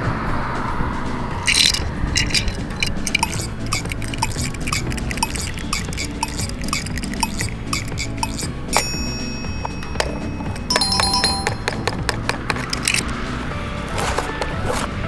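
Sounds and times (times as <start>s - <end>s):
light background music: 0.0s - 15.0s
toy cars clattering: 1.0s - 15.0s.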